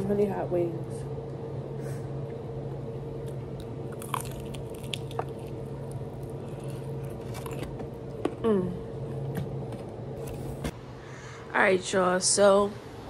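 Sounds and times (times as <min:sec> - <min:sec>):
steady low hum: 0:00.0 - 0:13.0
chewing and biting food: 0:03.2 - 0:08.2
small sharp crunches: 0:03.9 - 0:07.8.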